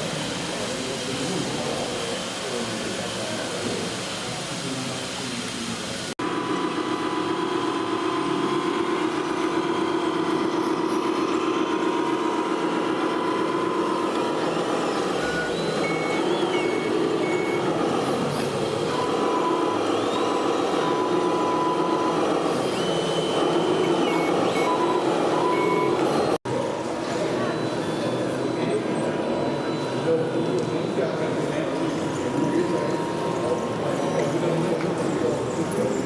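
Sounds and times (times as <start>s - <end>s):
electronic reversing beeps: 8.7s - 26.4s, 27.2s - 36.0s.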